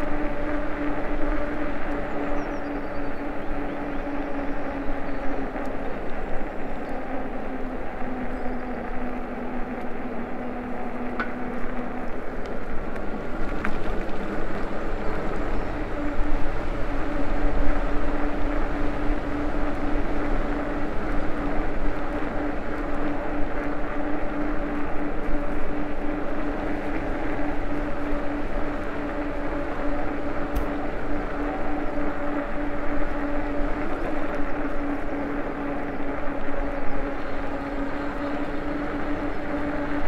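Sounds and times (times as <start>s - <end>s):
wind noise: 0.0s - 40.0s.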